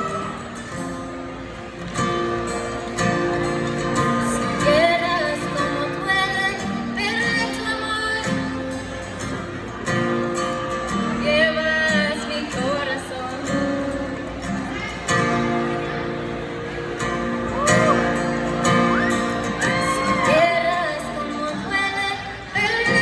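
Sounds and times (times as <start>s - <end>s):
strummed acoustic guitar: 0.0s - 23.0s
woman singing with vibrato: 4.1s - 8.8s, 11.1s - 13.9s, 17.7s - 23.0s.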